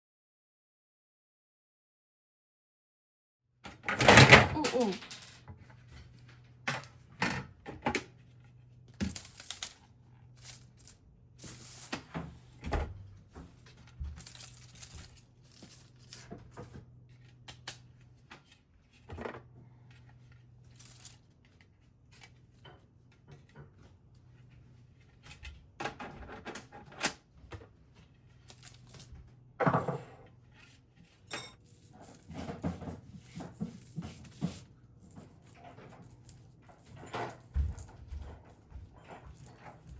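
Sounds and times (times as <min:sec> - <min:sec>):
small things being handled: 0:08.1 - 0:12.0, 0:13.5 - 0:17.3, 0:19.8 - 0:25.4, 0:28.0 - 0:29.1, 0:30.4 - 0:39.9.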